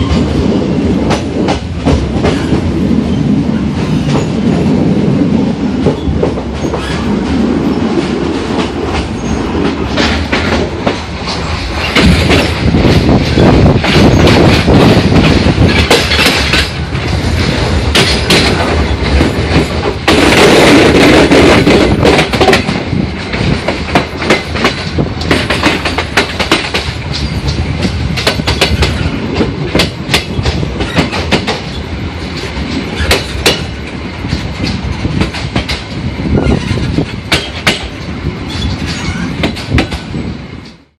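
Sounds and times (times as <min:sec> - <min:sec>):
train wheels rumbling on track: 0:00.0 - 0:41.0
sharp clacks and knocks: 0:13.8 - 0:16.8.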